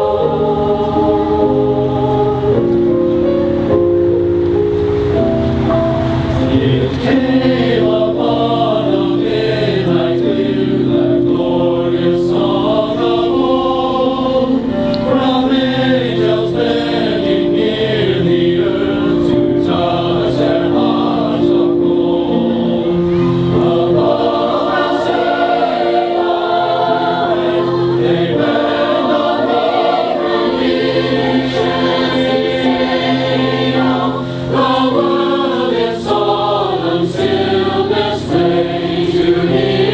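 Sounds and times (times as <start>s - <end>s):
mixed choir singing a carol: 0.0s - 39.9s.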